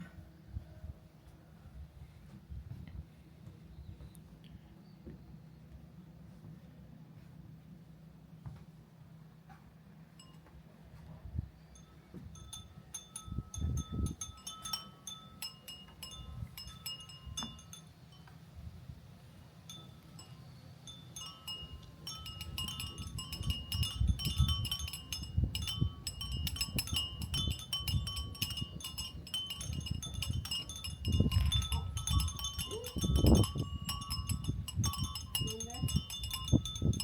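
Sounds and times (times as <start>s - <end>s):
wind rumble on microphone: 0.0s - 5.4s, 10.8s - 17.8s, 18.5s - 19.3s, 21.2s - 37.0s
wind chimes tinkling: 11.6s - 18.5s, 19.6s - 37.0s.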